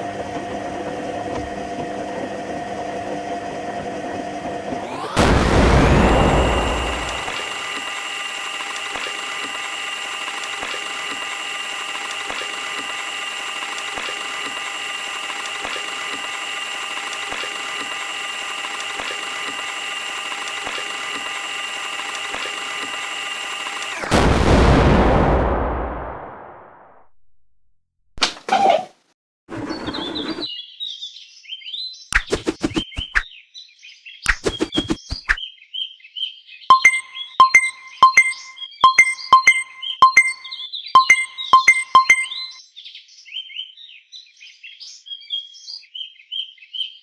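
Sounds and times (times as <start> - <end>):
washing machine whine: 0.0 - 24.4.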